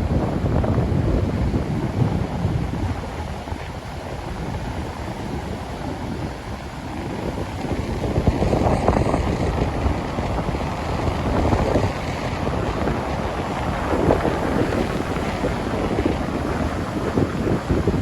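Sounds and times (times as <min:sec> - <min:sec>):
ocean surf: 0:00.0 - 0:18.0
wind buffeting microphone: 0:00.0 - 0:18.0.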